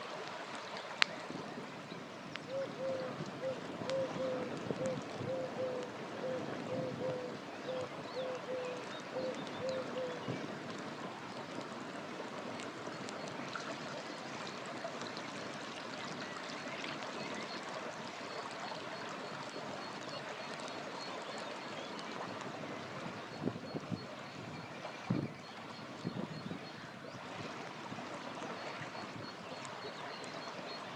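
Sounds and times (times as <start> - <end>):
river water flowing: 0.0 - 23.4, 26.7 - 30.9
campfire crackling: 7.9 - 15.3.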